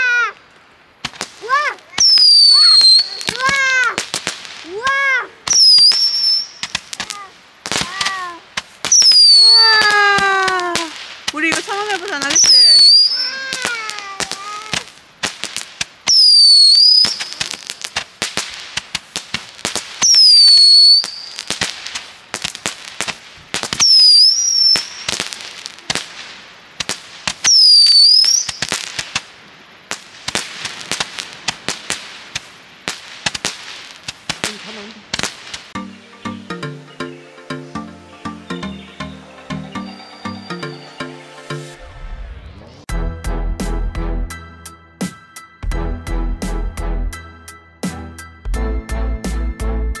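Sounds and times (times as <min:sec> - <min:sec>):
firework crackling pops: 0:00.0 - 0:35.8
firework whistles: 0:01.0 - 0:35.8, 0:39.8 - 0:42.9.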